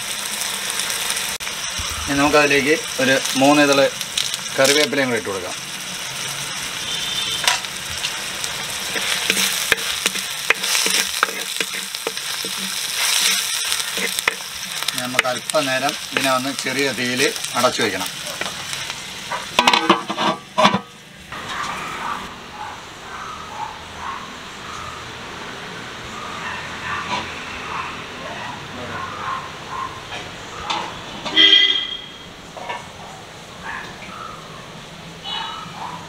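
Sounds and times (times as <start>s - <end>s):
onions sizzling in hot oil: 0.0s - 22.2s
spoon scraping and clinking pan: 8.9s - 16.4s.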